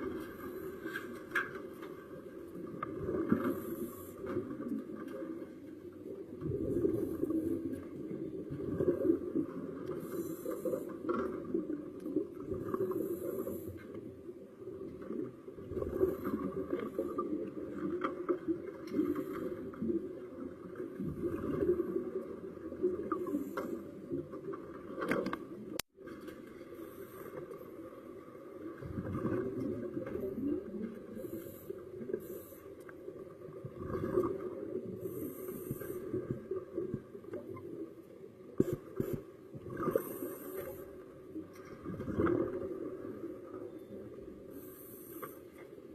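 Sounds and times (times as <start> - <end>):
muffled underwater rumbling: 27.6 - 45.2.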